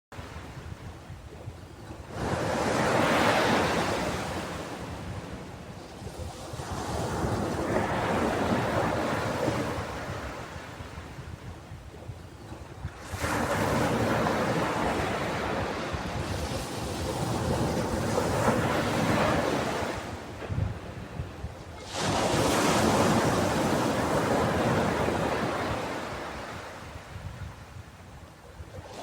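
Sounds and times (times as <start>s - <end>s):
ocean waves breaking on shore: 0.2s - 29.0s.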